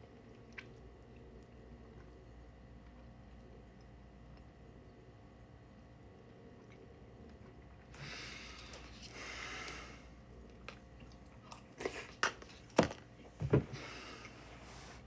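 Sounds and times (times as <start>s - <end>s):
knocks and thumps: 12.8s - 13.8s.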